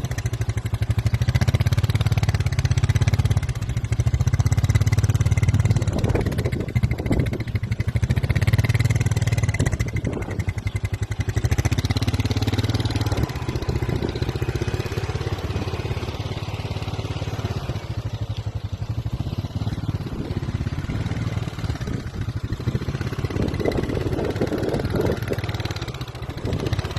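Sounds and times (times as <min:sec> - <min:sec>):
engine running with fast pulsing: 0:00.0 - 0:26.9.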